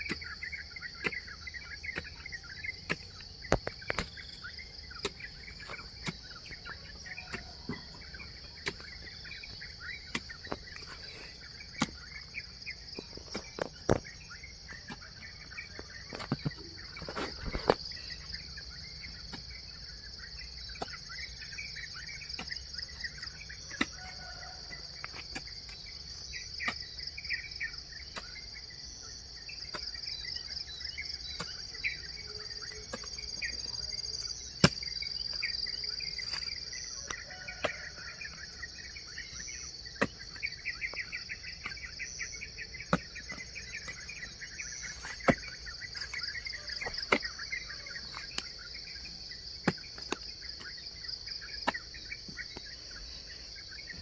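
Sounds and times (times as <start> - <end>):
high insect drone: 0.0 - 54.0
songbirds chirping: 0.0 - 54.0
hoe chopping into soil: 34.6 - 34.9, 44.8 - 48.4.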